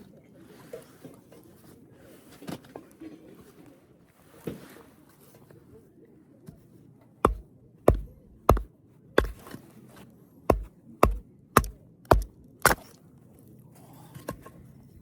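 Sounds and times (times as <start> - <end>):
sharp chopping strikes: 7.2 - 9.5, 10.5 - 13.0.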